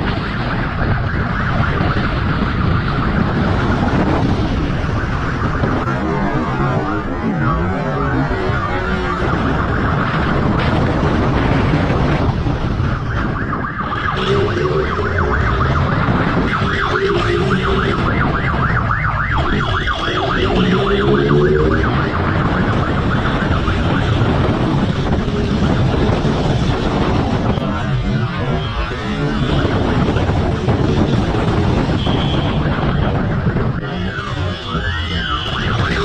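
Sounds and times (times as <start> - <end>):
police siren warbling: 0.0 - 36.0
wind and road noise: 0.0 - 36.0
motorcycle engine revving: 13.8 - 22.5.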